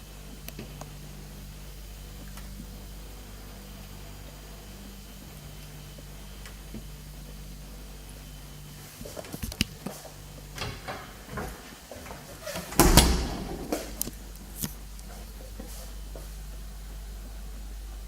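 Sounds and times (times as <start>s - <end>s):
low hum: 0.0s - 18.0s
loud thump: 12.8s - 14.0s.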